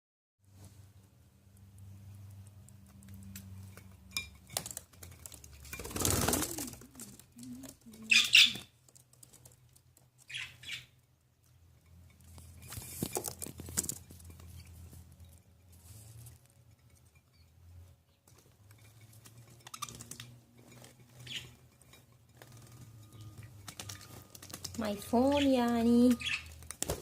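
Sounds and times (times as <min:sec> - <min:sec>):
fluttering wings: 0:04.6 - 0:08.7.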